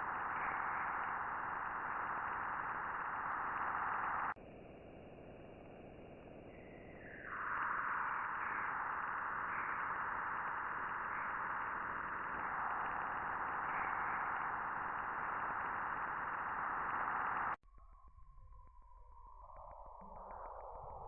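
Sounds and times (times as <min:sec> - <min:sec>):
static-like hiss of space signals: 0:00.0 - 0:04.4, 0:06.5 - 0:17.6.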